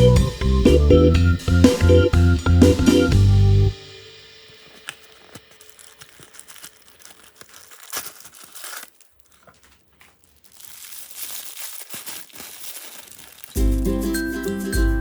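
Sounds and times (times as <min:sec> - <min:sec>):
plastic packaging crinkling: 0:04.5 - 0:14.0.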